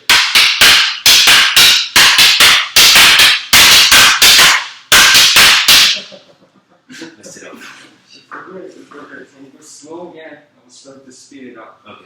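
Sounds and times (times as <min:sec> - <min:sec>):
sticks clacking together: 0:00.0 - 0:06.1.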